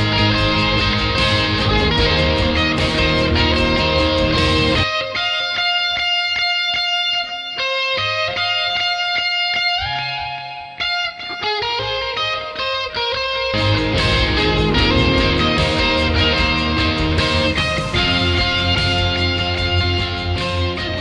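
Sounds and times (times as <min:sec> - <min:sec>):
electric guitar notes and chords: 0:00.0 - 0:21.0.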